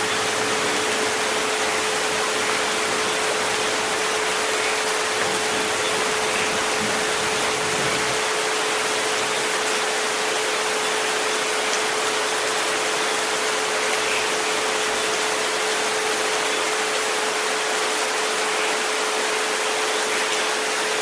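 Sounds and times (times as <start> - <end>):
rain hissing: 0.0 - 18.5.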